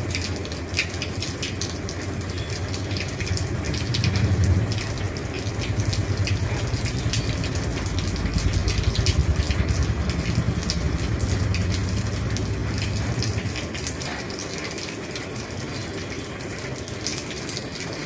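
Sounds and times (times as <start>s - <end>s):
heavy rain on a roof: 0.0s - 18.0s
low rumble: 2.6s - 14.4s.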